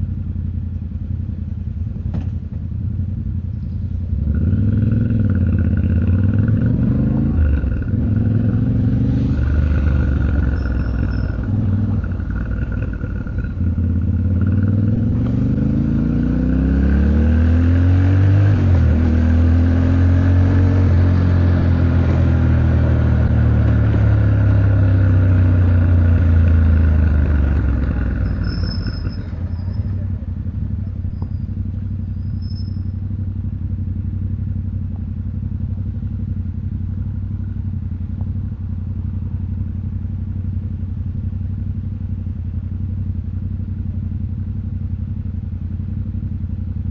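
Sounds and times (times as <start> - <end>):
motorcycle engine revving: 1.5 - 46.9.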